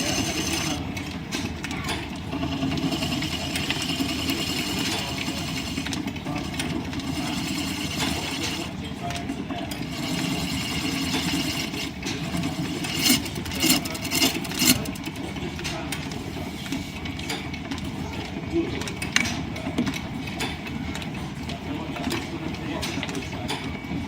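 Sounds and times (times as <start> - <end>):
wood lathe and belts running: 0.0 - 1.0, 2.2 - 15.4.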